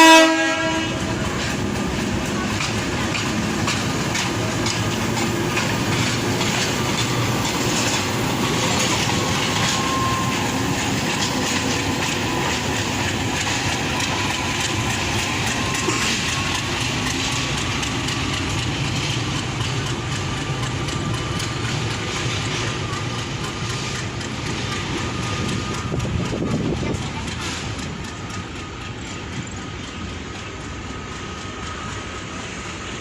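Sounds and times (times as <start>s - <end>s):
train rumbling on rails: 0.0s - 33.0s
wheels clicking over rail joints: 0.6s - 33.0s
thin wheel squeal: 8.6s - 10.6s, 13.5s - 17.6s.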